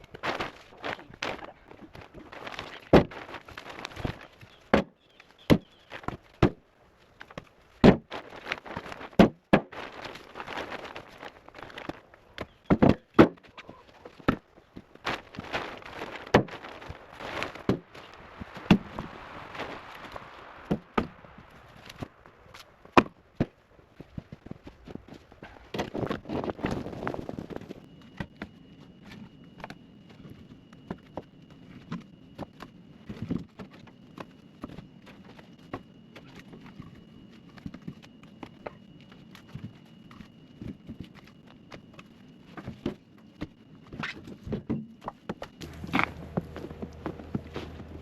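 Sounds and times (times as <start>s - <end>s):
crunching footsteps: 0.0s - 12.6s, 13.4s - 44.6s, 45.3s - 48.0s
logs knocking together: 12.4s - 14.4s, 44.4s - 48.0s.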